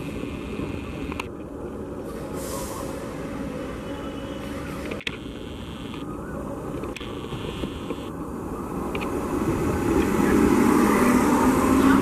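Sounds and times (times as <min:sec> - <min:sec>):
train coaches rumbling past: 0:00.0 - 0:05.0, 0:08.2 - 0:12.0.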